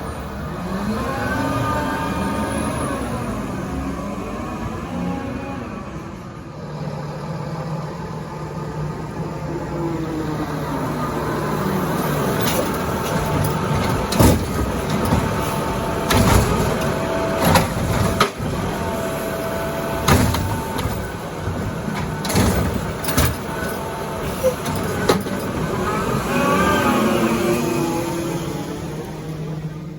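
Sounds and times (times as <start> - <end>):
garbage truck engine running: 0.0 - 29.9
loud metal clanks and bangs: 12.3 - 25.8.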